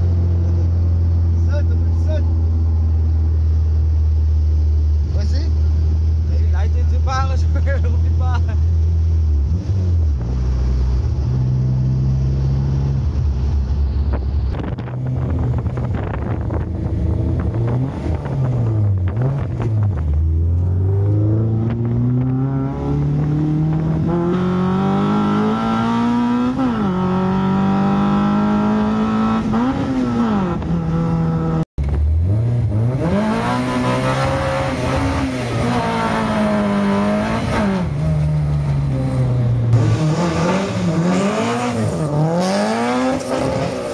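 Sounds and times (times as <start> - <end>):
car engine revving hard: 14.8 - 31.6, 32.2 - 38.2, 39.1 - 43.9.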